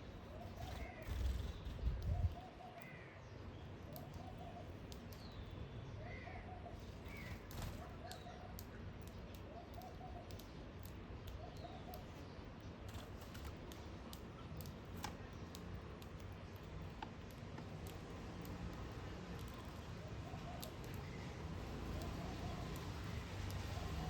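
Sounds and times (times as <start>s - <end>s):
faint sharp clicks: 3.9s - 5.5s, 7.2s - 12.3s, 12.9s - 24.0s.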